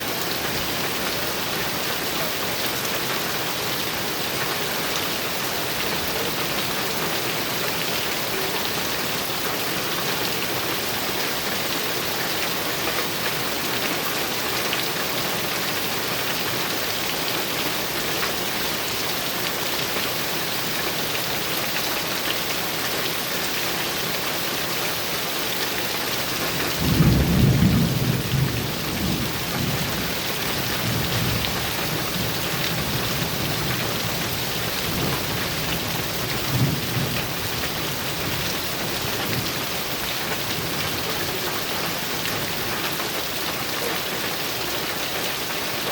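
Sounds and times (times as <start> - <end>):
heavy rain on metal roof: 0.0 - 45.9
thunder rolling: 26.8 - 30.1.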